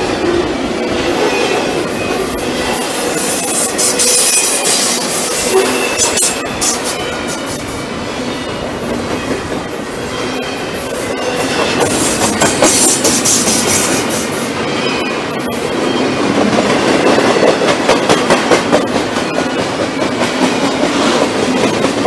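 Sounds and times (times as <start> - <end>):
high wheel squeal: 0.8 - 16.2
wheels clacking over rail joints: 8.4 - 14.8.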